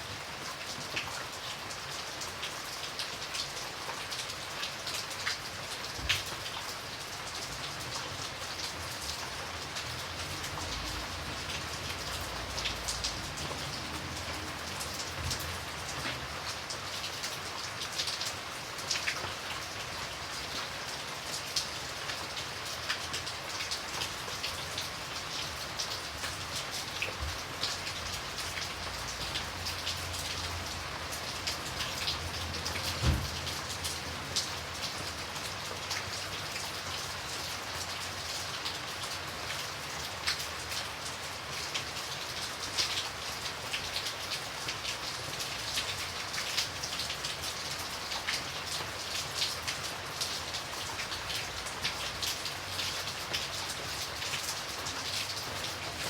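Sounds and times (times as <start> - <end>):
steady rain falling: 0.0 - 56.0
low thump: 33.0 - 33.4.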